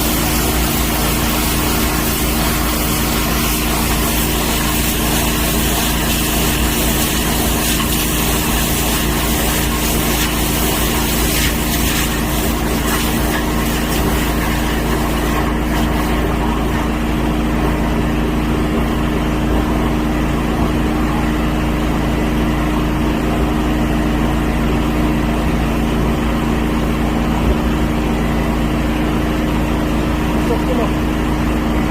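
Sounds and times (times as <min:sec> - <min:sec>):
machine hiss: 0:00.0 - 0:15.4
machine droning: 0:00.0 - 0:31.9.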